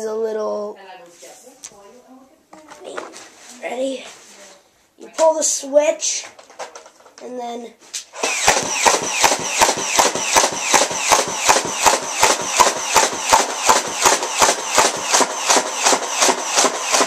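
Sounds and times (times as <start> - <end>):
high motor whine: 8.2 - 17.0
toy blaster clacks: 8.2 - 17.0.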